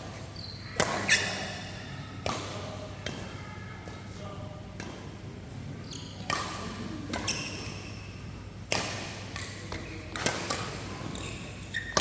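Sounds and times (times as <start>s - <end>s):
shoes squeaking on court floor: 0.0s - 4.0s, 4.8s - 8.2s, 9.4s - 12.0s
rackets hitting shuttlecock: 0.7s - 3.3s, 4.8s - 5.1s, 5.9s - 8.0s, 8.7s - 12.0s.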